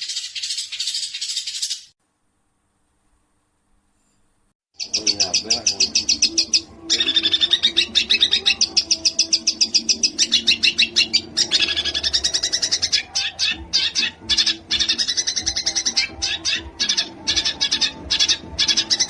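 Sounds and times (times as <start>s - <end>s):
songbird singing rapid sharp notes: 4.8s - 19.0s.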